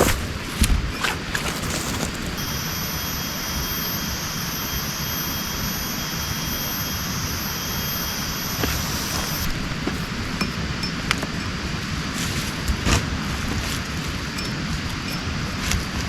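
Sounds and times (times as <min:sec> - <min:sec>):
high buzzing hiss: 0:01.6 - 0:12.7.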